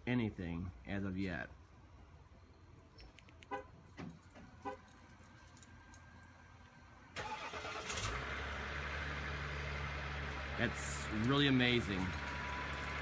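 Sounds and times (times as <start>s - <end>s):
diesel engine idling: 6.3s - 13.0s.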